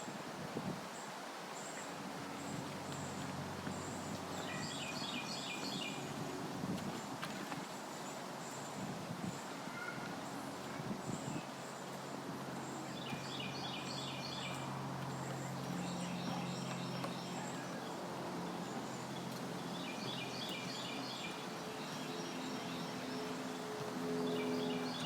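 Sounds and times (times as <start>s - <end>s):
songbird singing: 0.9s - 6.2s, 7.8s - 25.0s.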